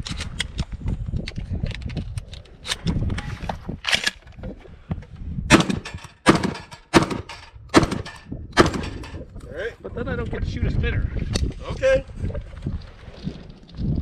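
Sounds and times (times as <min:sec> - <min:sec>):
gunshots: 0:05.5 - 0:09.2.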